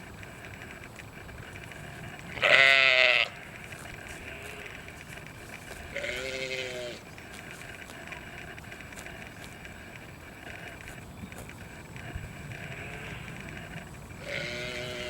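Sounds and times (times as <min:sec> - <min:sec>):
steady background noise: 0:00.0 - 0:15.0
farm animal bleating: 0:01.4 - 0:15.0.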